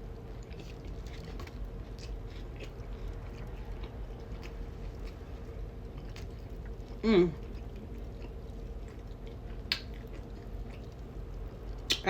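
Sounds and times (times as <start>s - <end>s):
chewing food: 0.0s - 12.0s
faint steady hum: 0.0s - 12.0s.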